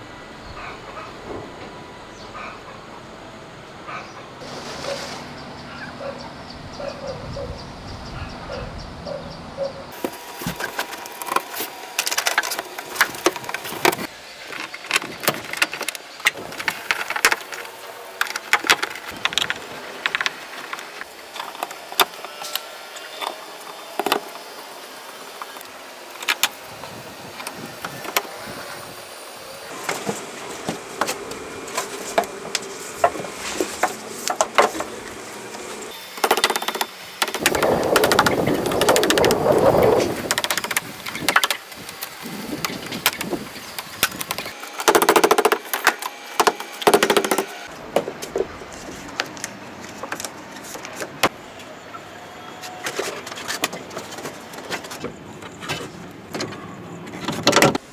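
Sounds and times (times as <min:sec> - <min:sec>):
sharp irregular clicks and knocks: 0:36.2 - 0:39.4, 0:40.3 - 0:47.6.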